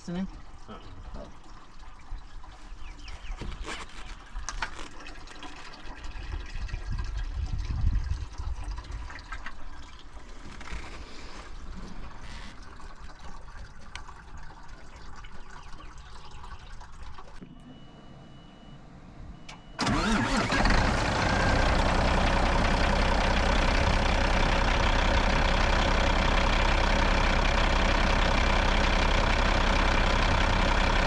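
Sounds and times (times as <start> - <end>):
liquid pouring and trickling: 0.3 - 17.4.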